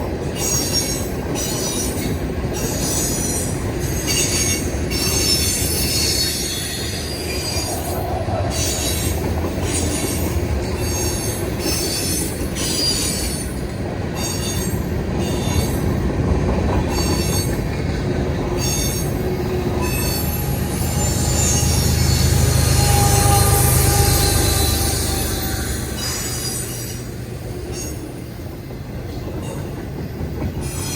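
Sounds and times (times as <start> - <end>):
freight train rumbling: 0.0 - 30.9
wheel squeals: 18.6 - 27.0.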